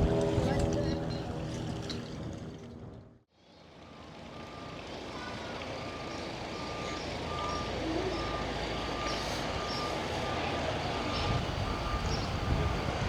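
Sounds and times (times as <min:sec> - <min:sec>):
engine and street rumble: 0:00.0 - 0:13.0
reversing alarm beeping: 0:03.8 - 0:13.0.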